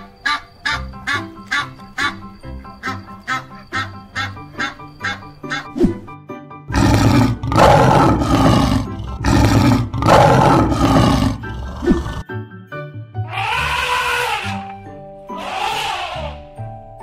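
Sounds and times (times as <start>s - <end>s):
light background music: 0.0s - 17.0s
lion roaring: 6.7s - 12.2s.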